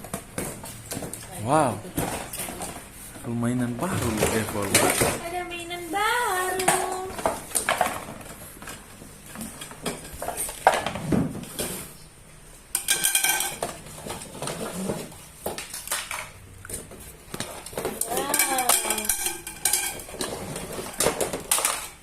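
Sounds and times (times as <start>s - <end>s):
plastic toy pieces clattering: 12.8s - 16.4s, 17.4s - 22.0s.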